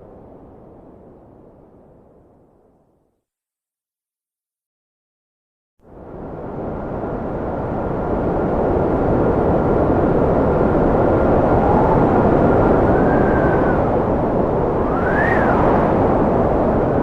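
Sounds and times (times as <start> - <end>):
strong wind blowing: 5.9 - 17.0
faint wind whistle: 10.0 - 17.0.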